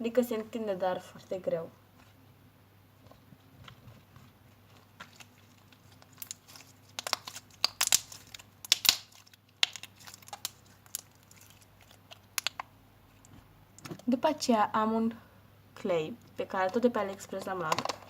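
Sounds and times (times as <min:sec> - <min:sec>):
slime crackling and popping: 0:04.8 - 0:12.7.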